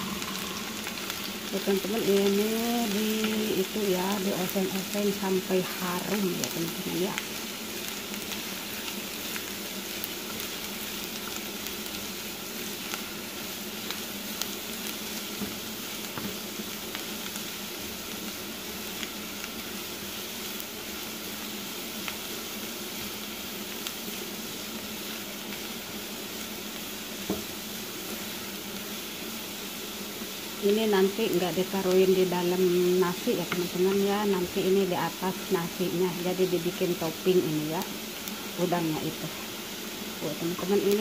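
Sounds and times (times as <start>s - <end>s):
shallots sizzling in oil: 0.0s - 41.0s.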